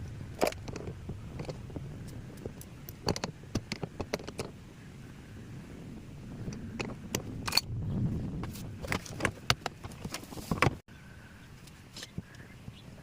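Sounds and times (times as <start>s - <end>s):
clicks and knocks of handled parts: 0.3s - 4.6s, 6.4s - 7.7s, 8.4s - 10.8s.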